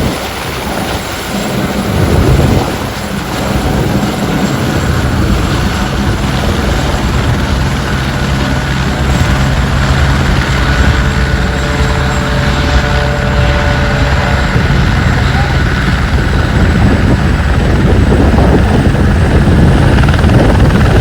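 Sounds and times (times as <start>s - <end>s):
helicopter rotor and engine hum: 0.0s - 21.0s
high-pitched whine: 4.3s - 20.8s.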